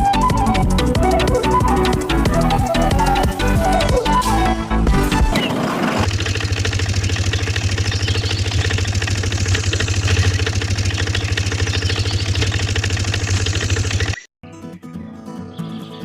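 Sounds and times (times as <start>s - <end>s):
small machine motor pulsing: 6.0s - 14.3s.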